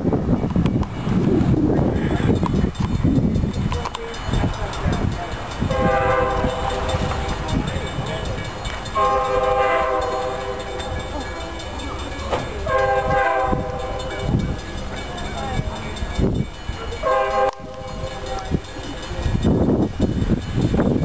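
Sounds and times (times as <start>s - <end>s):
low rumble of train running: 0.0s - 21.0s
train horn blasts: 5.7s - 7.3s, 9.0s - 10.8s, 12.7s - 14.1s, 17.0s - 17.8s.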